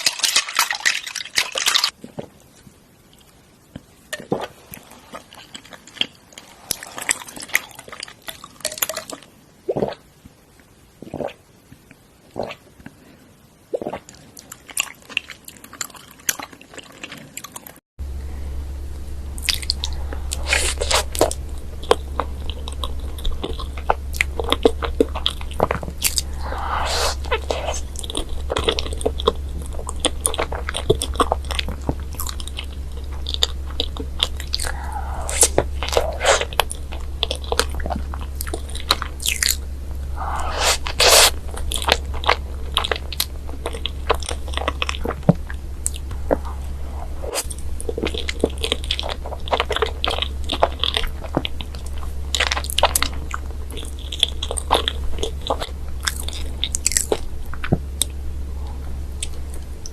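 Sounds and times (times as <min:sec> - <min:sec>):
crunchy chewing of snack: 0:13.8 - 0:17.8, 0:19.4 - 0:59.9
steady low hum: 0:18.0 - 0:59.9.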